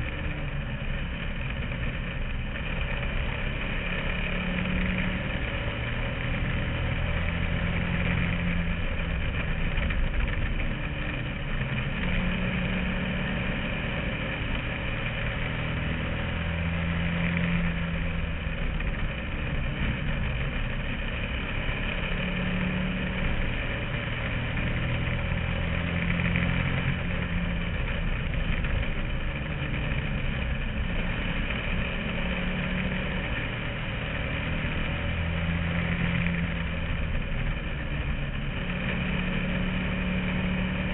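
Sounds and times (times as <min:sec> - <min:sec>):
race car engine revving: 0:00.0 - 0:40.9
road and wind noise: 0:00.0 - 0:40.9.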